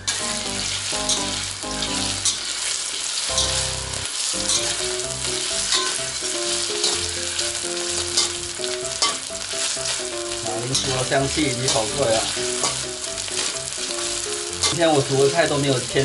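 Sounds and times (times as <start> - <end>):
potato slices sizzling in oil: 0.0 - 16.0
metal spatula scraping pan: 5.7 - 9.2, 10.7 - 15.0.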